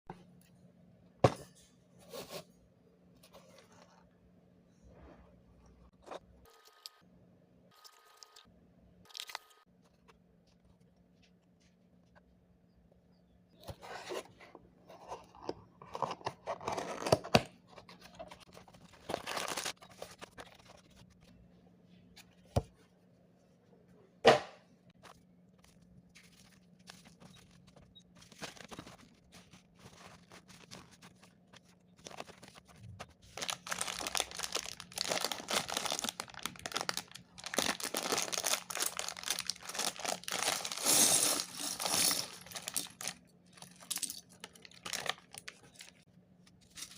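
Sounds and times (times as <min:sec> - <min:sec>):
packaging crinkling by hand: 0:15.0 - 0:21.1, 0:24.9 - 0:46.9.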